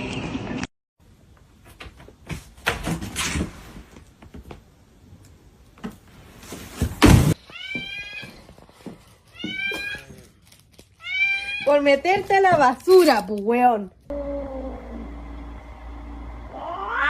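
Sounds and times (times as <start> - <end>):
cat meowing: 16.5 - 17.0.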